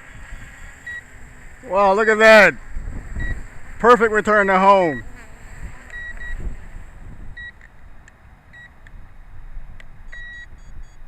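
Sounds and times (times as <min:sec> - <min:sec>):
wind rumbling on microphone: 0:00.0 - 0:11.0
electronic alert beeps: 0:00.8 - 0:01.0, 0:05.9 - 0:06.4, 0:10.1 - 0:11.0.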